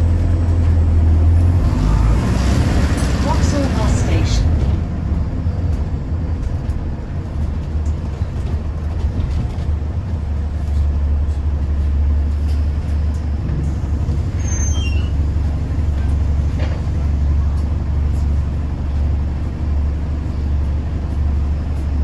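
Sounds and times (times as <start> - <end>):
bus engine rumble: 0.0 - 22.0
brief high squeak: 14.3 - 15.2.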